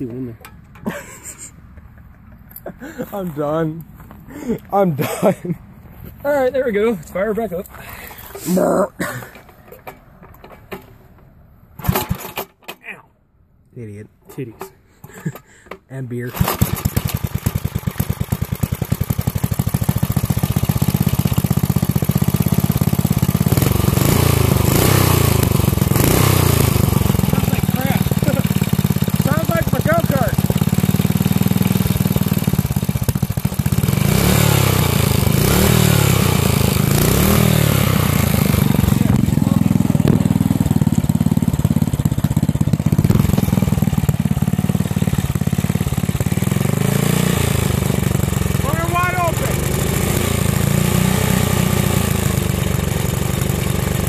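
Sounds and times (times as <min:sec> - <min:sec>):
small engine running: 0:16.3 - 0:54.0.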